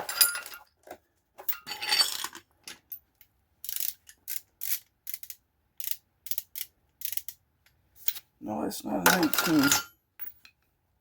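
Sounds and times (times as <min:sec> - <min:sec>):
ratchet clicking: 0:03.6 - 0:07.4.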